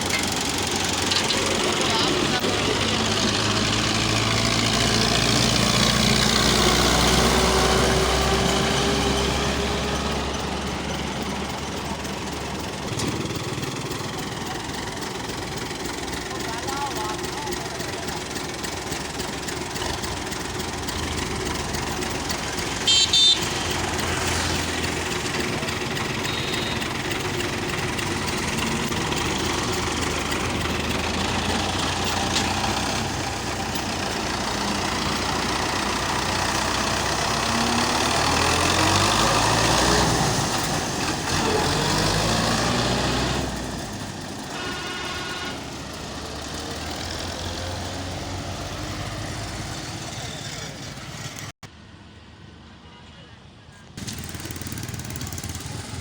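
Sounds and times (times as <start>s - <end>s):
heavy vehicle engine running: 0.0s - 52.6s, 54.0s - 56.0s
horn toots: 22.8s - 24.6s, 44.4s - 45.9s.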